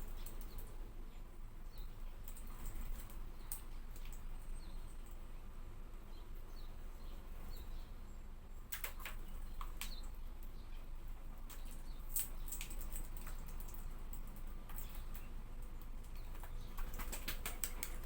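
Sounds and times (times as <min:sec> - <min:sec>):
birds clicking ticks: 0:00.0 - 0:00.8, 0:01.7 - 0:05.2, 0:08.7 - 0:18.0
steady low hum: 0:00.0 - 0:18.0.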